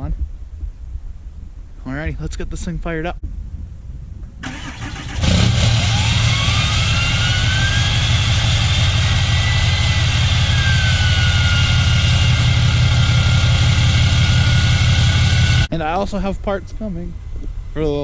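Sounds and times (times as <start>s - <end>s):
diesel truck engine idling: 4.4s - 15.7s
turbo whistle: 5.8s - 15.7s.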